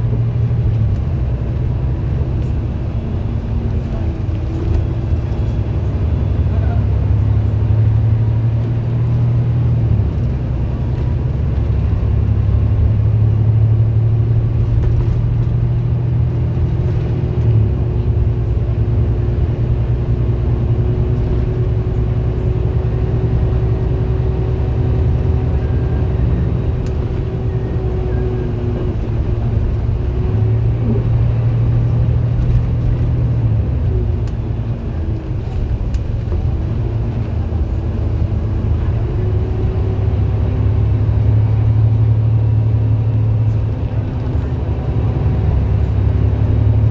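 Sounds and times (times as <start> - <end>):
bus engine droning: 0.0 - 46.9.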